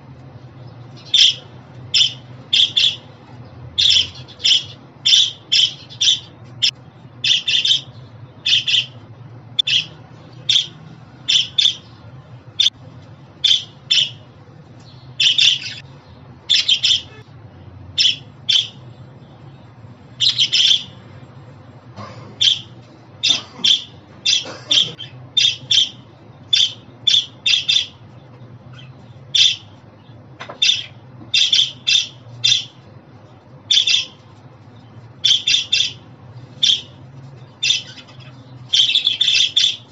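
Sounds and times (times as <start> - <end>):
budgerigar chirping and squawking: 1.0 - 3.1, 3.8 - 9.0, 9.6 - 11.9, 13.4 - 14.3, 15.2 - 15.9, 16.5 - 17.2, 18.0 - 18.8, 20.2 - 21.0, 22.4 - 28.0, 28.7 - 29.7, 30.6 - 32.8, 33.7 - 34.2, 35.2 - 37.0, 37.6 - 39.9.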